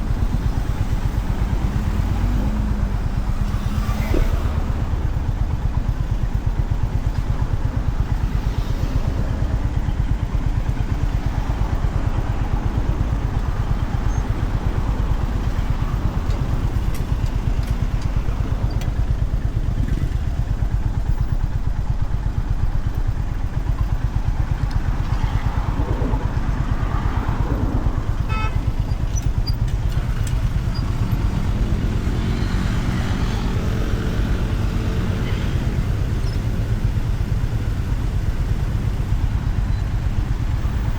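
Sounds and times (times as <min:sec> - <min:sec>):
motorcycle engine running: 0:00.0 - 0:40.9
wind and road noise: 0:00.0 - 0:40.9
pitched drone: 0:24.4 - 0:29.5.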